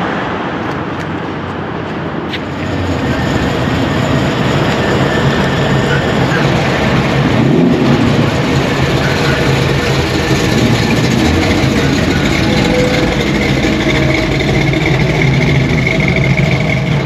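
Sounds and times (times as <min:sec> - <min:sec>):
car engine running: 0:02.3 - 0:17.0.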